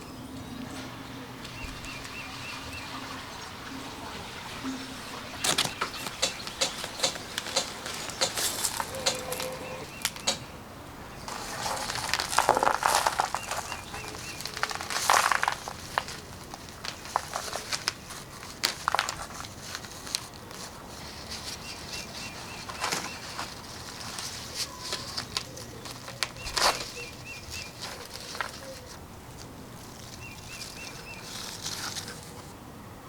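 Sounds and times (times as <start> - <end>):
rustling and crackling handling: 5.2 - 10.5, 11.2 - 32.6
faint bird chirps: 8.0 - 10.5.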